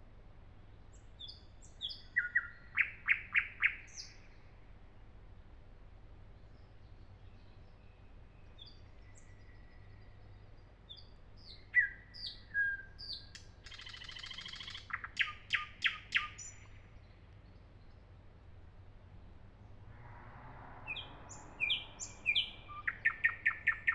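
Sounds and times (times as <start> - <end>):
nightingale singing: 1.2 - 4.3, 10.9 - 17.2, 20.9 - 23.9.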